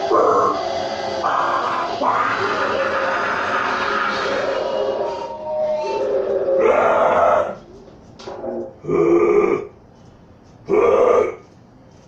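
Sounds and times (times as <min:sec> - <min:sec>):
harsh vocal shrieks: 0:00.0 - 0:07.7, 0:10.7 - 0:11.4
weak cry: 0:01.2 - 0:07.7, 0:10.7 - 0:11.5.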